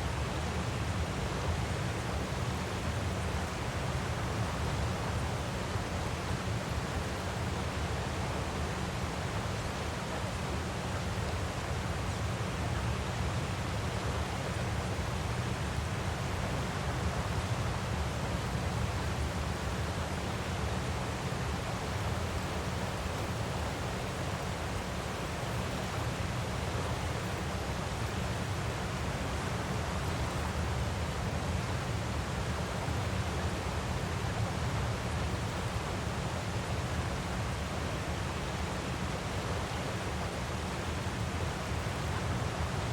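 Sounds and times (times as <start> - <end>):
waterfall rushing: 21.5 - 31.2.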